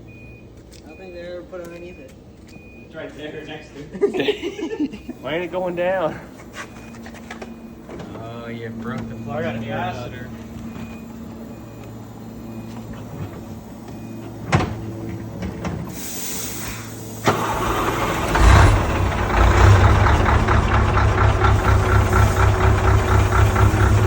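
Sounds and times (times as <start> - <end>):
truck diesel engine idling: 7.4 - 24.0.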